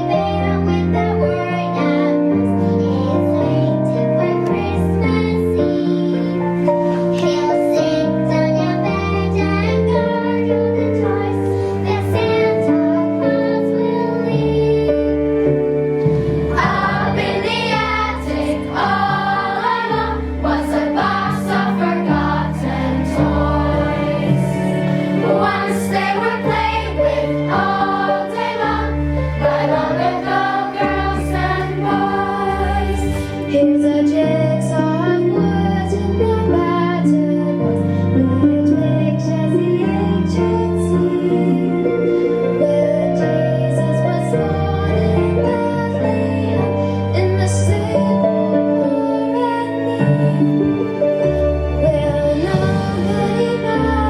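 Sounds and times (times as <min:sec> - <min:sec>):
instrumental accompaniment: 0:00.0 - 0:54.0
children singing together: 0:16.5 - 0:33.5, 0:52.3 - 0:54.0.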